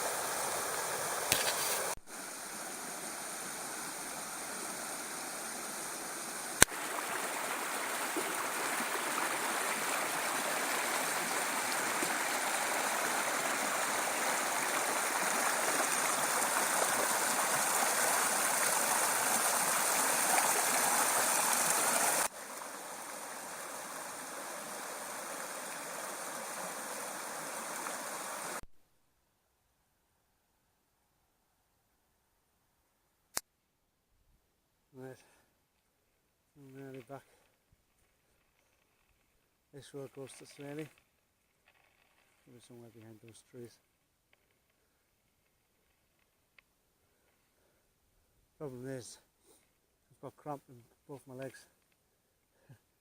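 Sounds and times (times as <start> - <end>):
stream rushing over rocks: 0.0 - 28.6.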